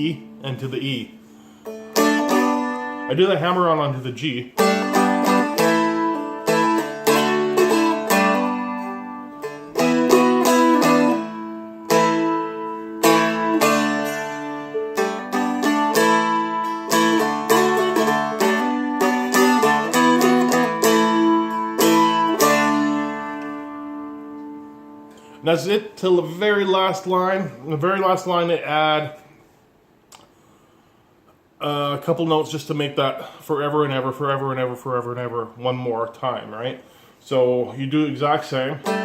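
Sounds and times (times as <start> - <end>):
dulcimer strummed with a pick: 0.1 - 3.6, 4.6 - 25.4, 38.5 - 39.0.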